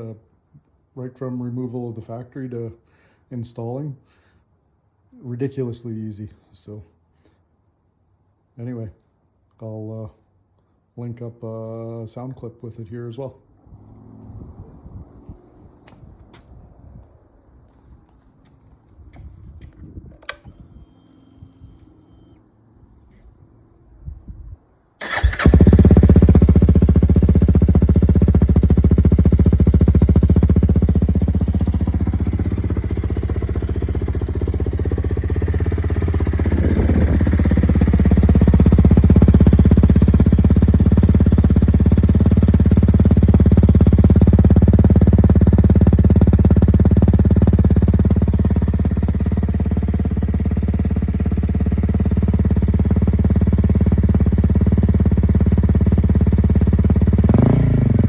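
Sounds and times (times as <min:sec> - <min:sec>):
motorcycle engine idling: 0:25.0 - 0:58.0.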